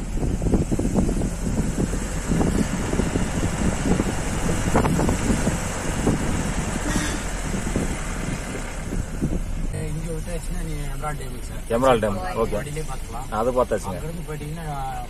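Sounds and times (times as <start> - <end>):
wind buffeting microphone: 0.0 - 10.6
low bumps: 0.0 - 11.7
engine and road rumble: 0.0 - 15.0.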